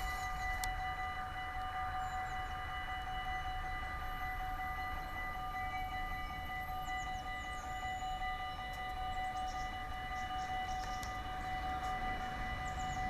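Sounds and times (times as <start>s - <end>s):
level crossing warning bells ringing: 0.0s - 13.0s.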